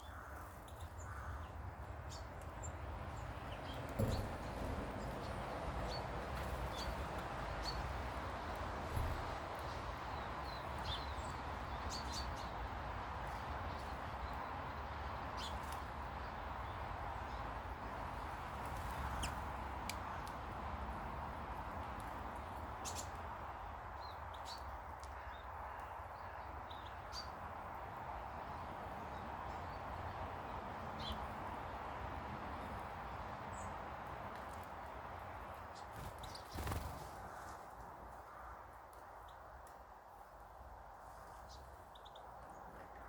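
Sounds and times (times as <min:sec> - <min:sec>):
birds chirping: 0:00.0 - 0:19.6, 0:35.6 - 0:37.3.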